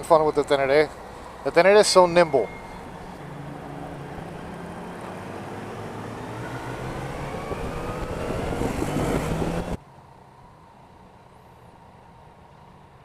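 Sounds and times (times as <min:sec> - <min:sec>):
motorcycle engine accelerating: 0:02.5 - 0:09.8
wind noise: 0:02.5 - 0:09.8.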